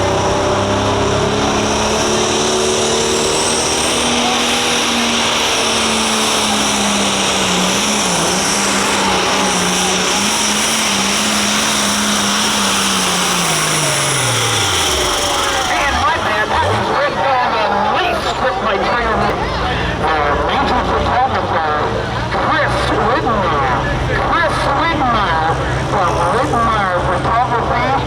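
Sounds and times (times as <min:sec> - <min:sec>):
diesel tractor engine at full throttle: 0:00.0 - 0:28.0
high turbo whine: 0:00.0 - 0:28.0.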